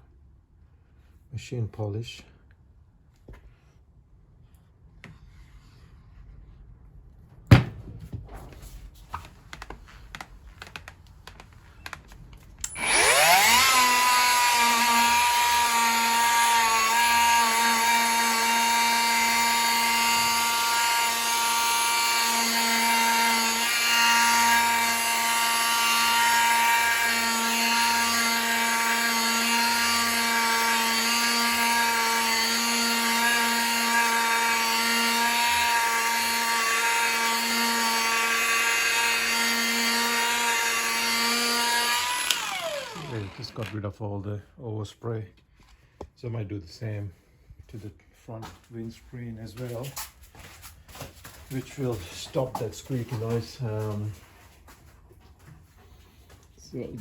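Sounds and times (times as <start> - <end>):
sharp knock: 7.5 - 8.1
machine polisher motor: 12.7 - 43.8.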